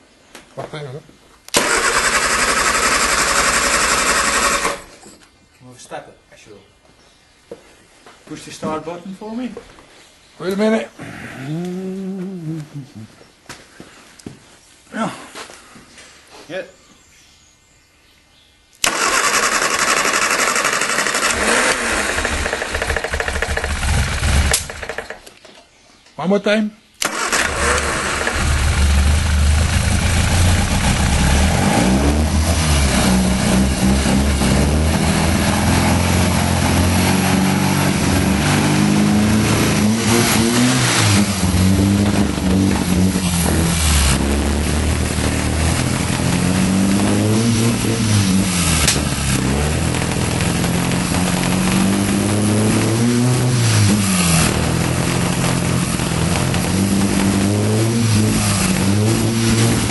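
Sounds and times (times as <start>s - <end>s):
car engine throttle blipped: 27.0s - 59.9s.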